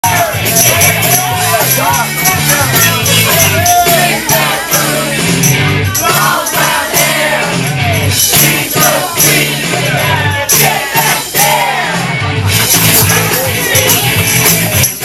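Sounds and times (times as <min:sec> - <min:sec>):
steady beat: 0:00.0 - 0:15.0
stepping bass line: 0:00.0 - 0:15.0
person singing: 0:12.9 - 0:15.0.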